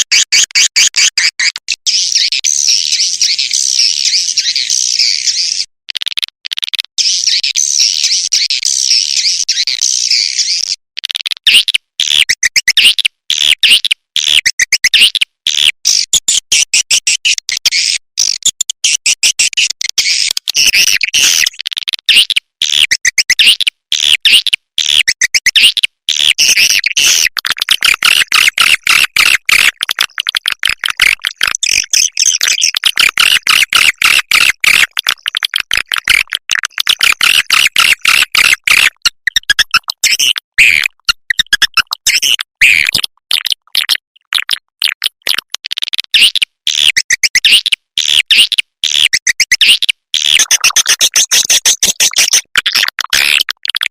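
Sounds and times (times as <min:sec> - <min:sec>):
swiftlet calls chittering: 0:50.4 - 0:52.3.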